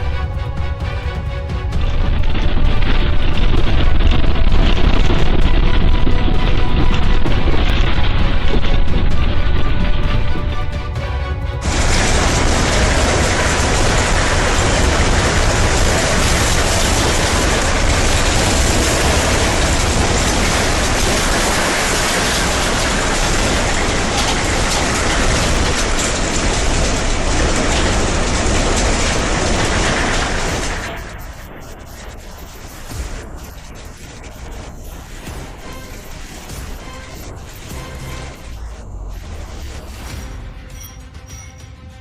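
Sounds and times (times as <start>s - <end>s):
heavy rain pouring: 0.0s - 40.2s.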